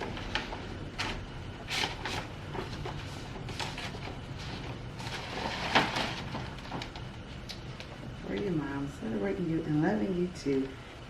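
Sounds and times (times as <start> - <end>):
paper crackling and rustling: 0.0 - 8.6.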